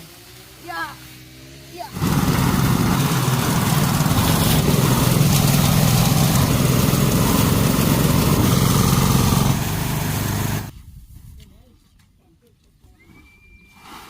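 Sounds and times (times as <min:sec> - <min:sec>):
brush cutter engine running: 0:01.9 - 0:10.7.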